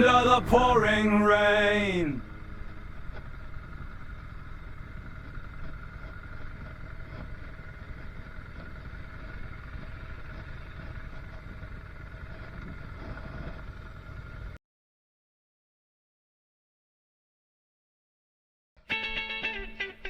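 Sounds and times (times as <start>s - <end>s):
engine running with whine: 0.0s - 14.6s, 18.9s - 20.0s.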